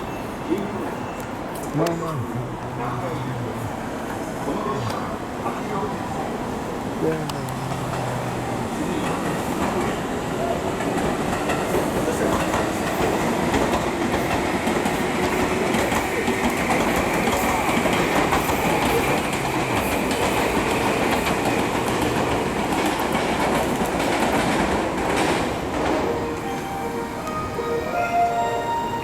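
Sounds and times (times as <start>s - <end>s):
train wheels clacking over joints: 10.8s - 26.1s.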